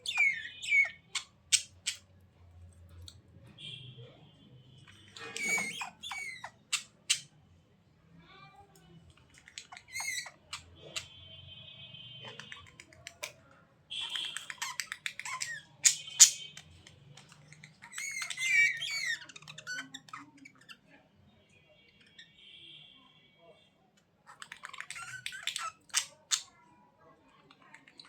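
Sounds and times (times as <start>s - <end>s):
budgerigars chirping and warbling: 0.0s - 2.1s, 4.8s - 7.4s, 9.3s - 11.2s, 14.0s - 20.8s, 24.3s - 26.5s.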